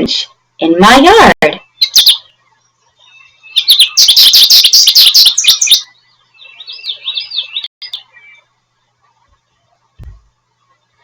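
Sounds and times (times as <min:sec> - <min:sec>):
goldfinch singing: 0:01.6 - 0:02.3, 0:02.9 - 0:08.5.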